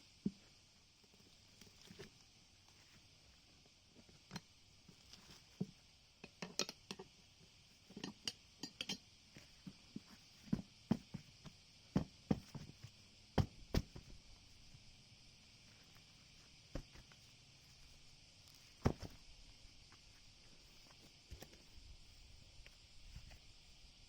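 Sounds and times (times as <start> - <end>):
metal tools clinking and knocking: 8.0 - 9.0.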